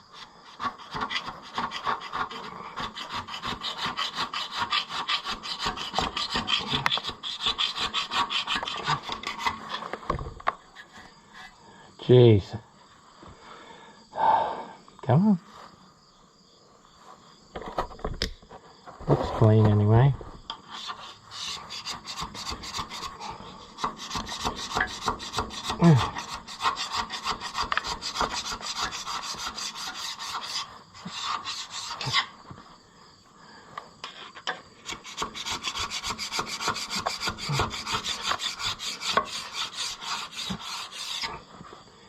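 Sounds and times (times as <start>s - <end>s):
hand scraping a surface: 0.1s - 11.7s, 19.1s - 32.8s, 34.0s - 41.9s.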